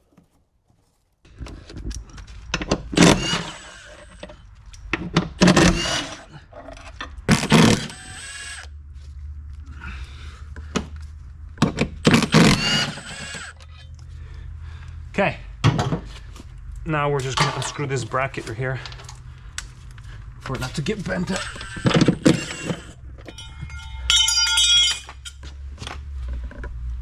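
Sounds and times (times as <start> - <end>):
steady low hum: 1.3 - 27.0
impact wrench bursts: 2.8 - 4.4, 5.4 - 6.3, 7.3 - 8.7, 12.0 - 13.8, 20.5 - 23.4.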